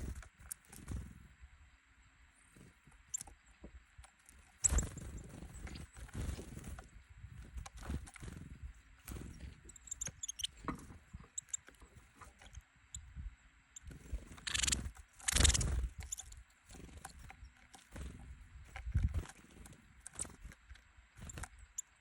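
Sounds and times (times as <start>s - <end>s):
birds pecking at seeds: 0.0s - 1.2s, 2.5s - 13.1s, 13.7s - 22.0s
faint high bird chirps: 4.5s - 6.1s, 9.2s - 11.8s, 12.4s - 18.3s, 21.2s - 22.0s
wings flapping: 4.6s - 6.8s, 14.0s - 20.6s, 21.2s - 21.8s.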